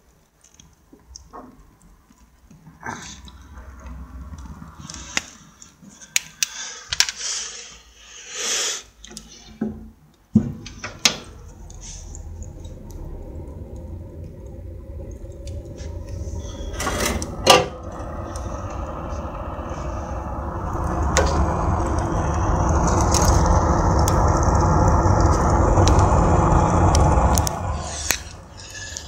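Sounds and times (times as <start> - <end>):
steady low rumble: 11.2 - 29.0.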